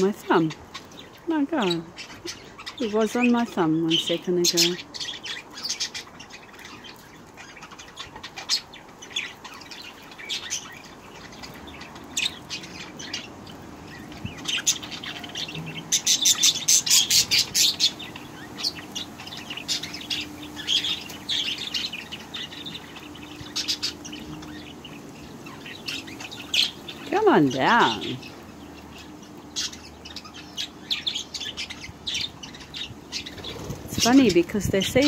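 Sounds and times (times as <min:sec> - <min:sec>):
budgerigars chirping: 0:00.0 - 0:35.0.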